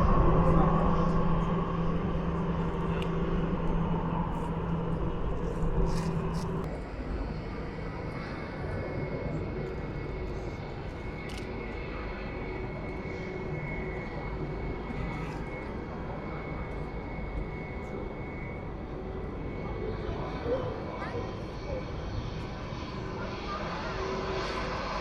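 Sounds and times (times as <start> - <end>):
high steady whine: 0.0 - 6.7
jet engines rumbling: 0.0 - 25.0.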